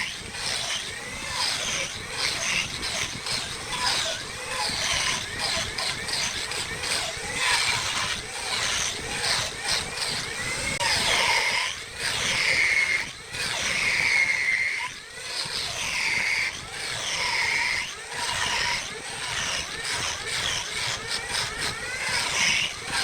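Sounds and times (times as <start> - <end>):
lathe tool scraping wood: 0.0 - 23.0.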